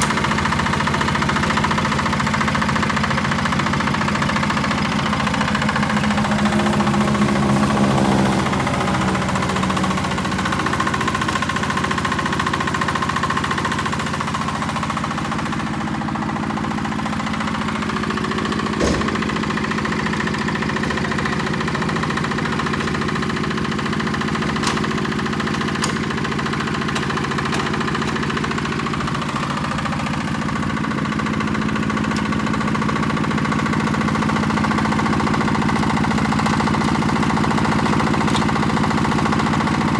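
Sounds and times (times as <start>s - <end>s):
diesel engine running: 0.0s - 39.9s
sharp knock: 18.8s - 19.3s.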